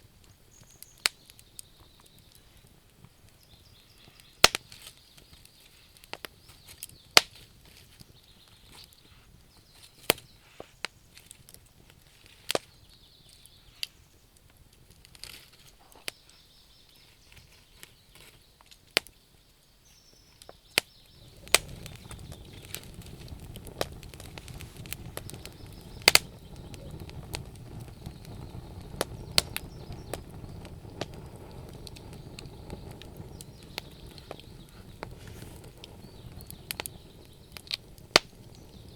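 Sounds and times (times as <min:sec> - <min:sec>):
wood fire crackling: 0:00.0 - 0:38.9
steady low rumble: 0:21.1 - 0:38.9.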